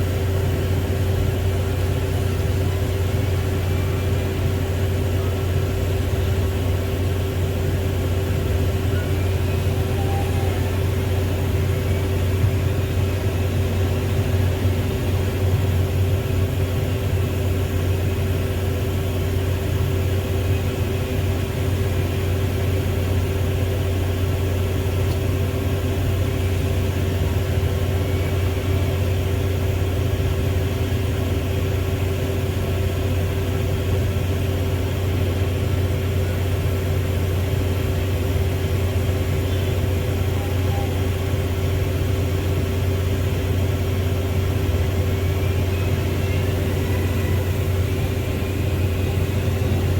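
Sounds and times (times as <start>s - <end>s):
diesel engine running steadily: 0.0s - 49.9s.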